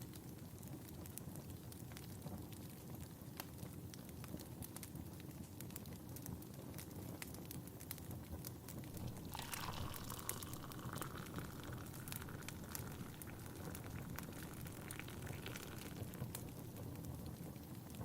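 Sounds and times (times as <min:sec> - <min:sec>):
wood fire crackling: 0:00.0 - 0:18.0
tea pouring into a cup: 0:08.8 - 0:17.1.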